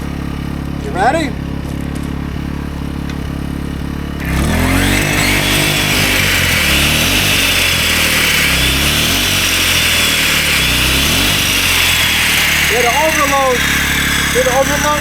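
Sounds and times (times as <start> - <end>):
circular saw whining: 0.0 - 15.0
generator engine humming: 0.0 - 15.0.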